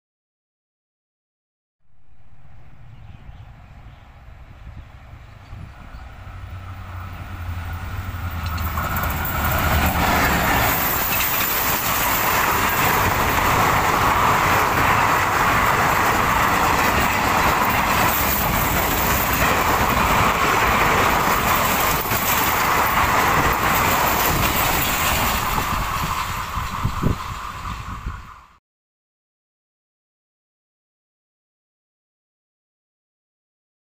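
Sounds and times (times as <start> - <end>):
diesel locomotive engine drone: 1.8 - 28.6
train coaches and wheels rushing: 2.0 - 28.6.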